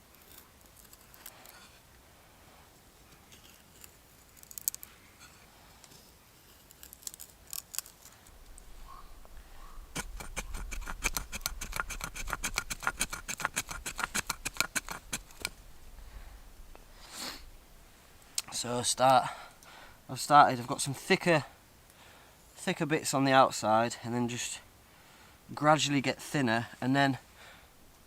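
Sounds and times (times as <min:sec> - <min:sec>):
knife shaving wooden stick: 0:09.8 - 0:15.6.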